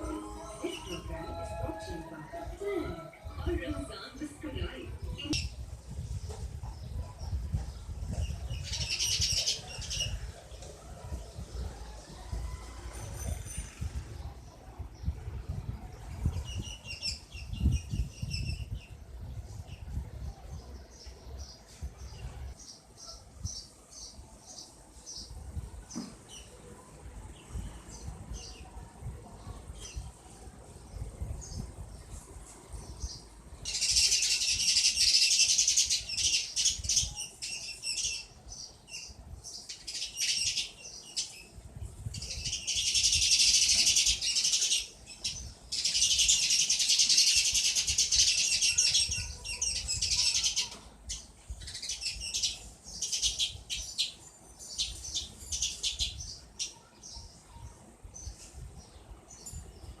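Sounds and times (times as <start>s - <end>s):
sparrow chirping rapidly: 5.2s - 10.4s, 33.0s - 57.3s.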